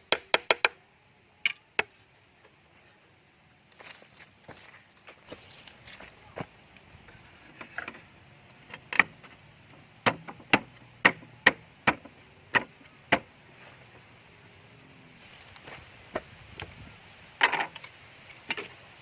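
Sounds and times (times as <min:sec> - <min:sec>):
chopping strikes on wood: 0:10.0 - 0:13.3.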